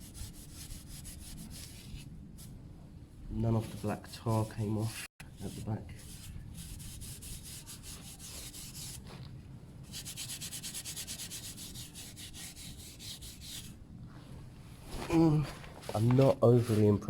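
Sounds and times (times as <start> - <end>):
steel wool scrubbing metal pipe: 5.4 - 9.0, 9.9 - 13.8.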